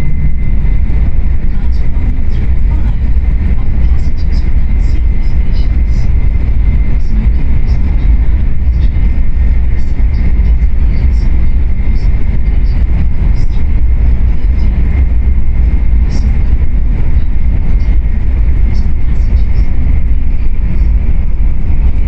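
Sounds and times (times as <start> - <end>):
faint high whine: 0.0 - 22.0
train low rumble: 0.0 - 22.0.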